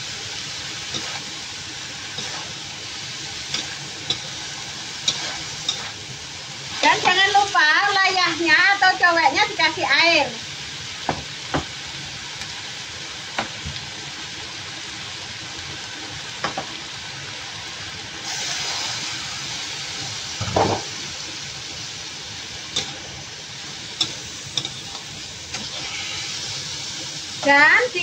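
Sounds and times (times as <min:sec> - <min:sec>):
food sizzling in a wok: 0:00.0 - 0:28.0
spatula scraping: 0:05.0 - 0:06.0
spatula stirring: 0:05.0 - 0:06.0.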